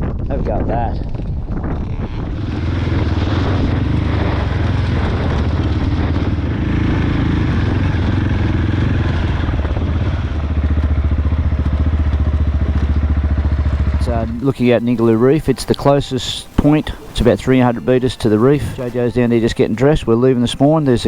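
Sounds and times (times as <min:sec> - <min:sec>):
wind rush: 0:00.0 - 0:11.6
motorcycle engine running: 0:01.0 - 0:21.0.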